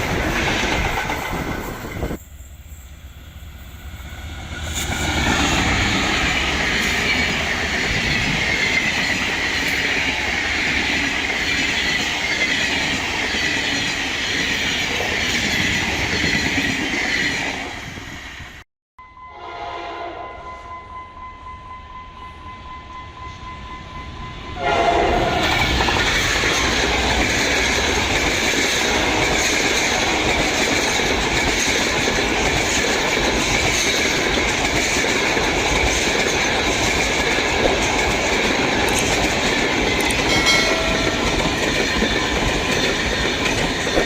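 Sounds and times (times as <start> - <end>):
passenger train passing: 0.0 - 44.0
wheels clacking over rail joints: 25.4 - 44.0.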